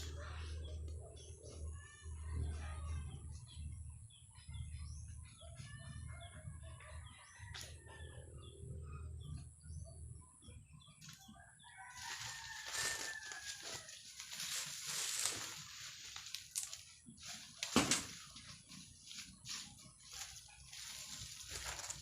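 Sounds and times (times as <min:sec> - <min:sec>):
rooster crowing: 0:11.6 - 0:14.0.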